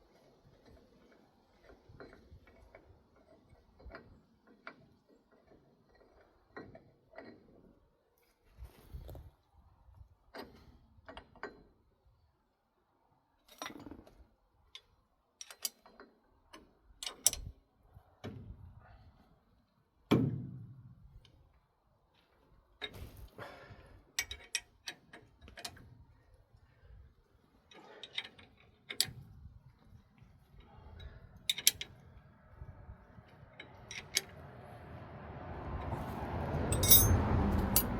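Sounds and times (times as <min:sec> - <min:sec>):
metallic clicks and knocks of tools: 0:14.8 - 0:15.9, 0:31.5 - 0:31.9, 0:36.8 - 0:37.9
heavy ringing metal knock: 0:36.8 - 0:37.9.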